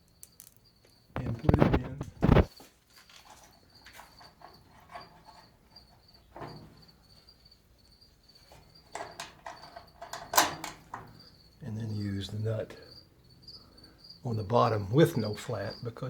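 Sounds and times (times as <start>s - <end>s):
clicks and knocks of metal parts: 0.0s - 0.6s, 8.9s - 11.2s
cricket chirping: 0.0s - 16.0s.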